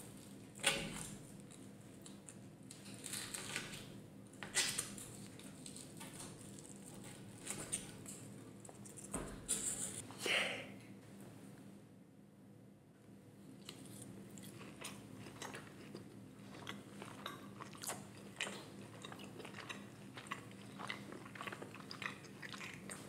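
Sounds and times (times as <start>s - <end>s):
person chewing steak: 13.6s - 23.0s.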